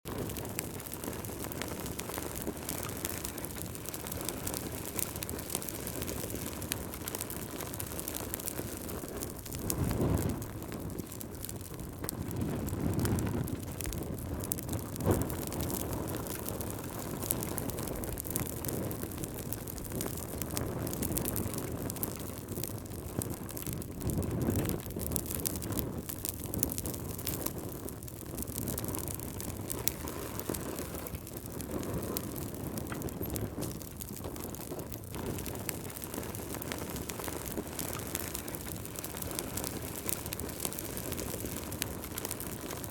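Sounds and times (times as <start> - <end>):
wood fire crackling: 0.0 - 42.9
wind rumbling in gusts: 0.1 - 42.9.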